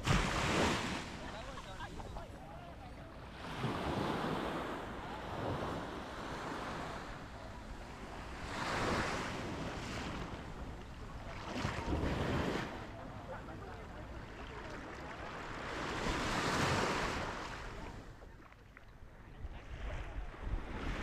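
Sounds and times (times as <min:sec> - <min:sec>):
sea waves breaking on beach: 0:00.0 - 0:02.2, 0:03.2 - 0:18.2
wind on microphone: 0:19.3 - 0:21.0.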